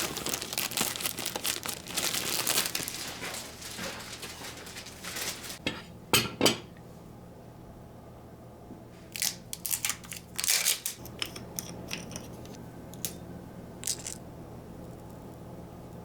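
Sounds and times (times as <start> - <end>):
kitchen clicks and scrapes: 10.0 - 13.2.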